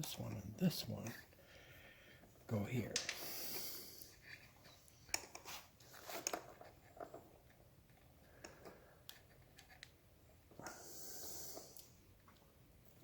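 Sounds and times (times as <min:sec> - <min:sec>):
faint clicks and metallic taps: 0:04.3 - 0:05.5.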